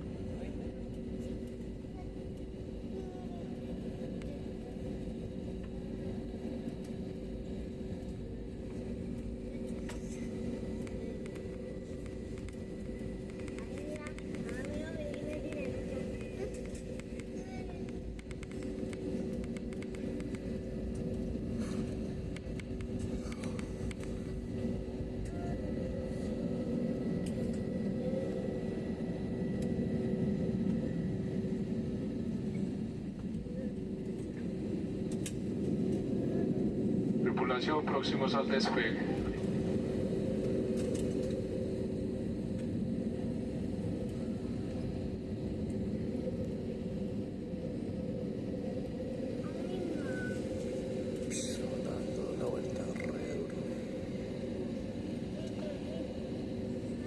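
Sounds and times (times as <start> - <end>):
aircraft engine rumble: 0.0 - 57.0
constant hum: 0.0 - 57.0
faint clicks: 10.8 - 21.2.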